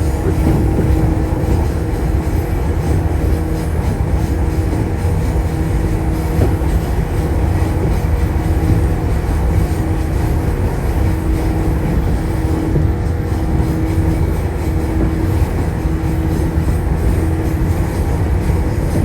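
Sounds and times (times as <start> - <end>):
train wheels rumbling: 0.0 - 19.0.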